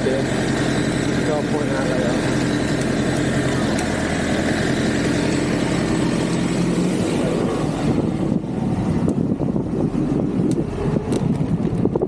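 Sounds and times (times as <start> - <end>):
street traffic: 0.0 - 12.0
vehicle engine running: 0.0 - 12.0
wind rumble on microphone: 5.8 - 12.0.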